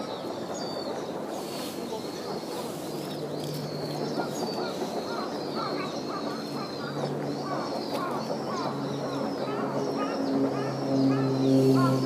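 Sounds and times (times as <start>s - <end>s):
steady background hum: 0.0s - 12.0s
lower repeated bird call: 1.9s - 12.0s.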